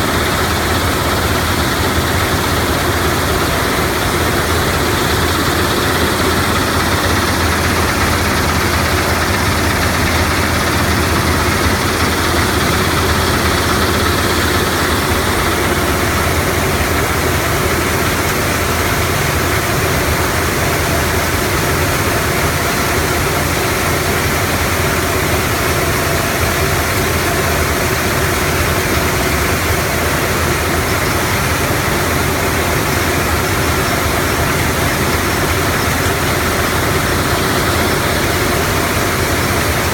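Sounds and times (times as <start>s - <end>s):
machinery droning: 0.0s - 20.7s.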